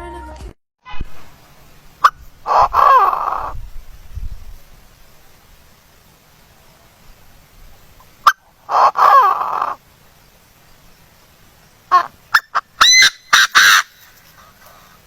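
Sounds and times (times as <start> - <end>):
bird calling: 2.0 - 3.6, 8.0 - 9.8, 10.7 - 15.0.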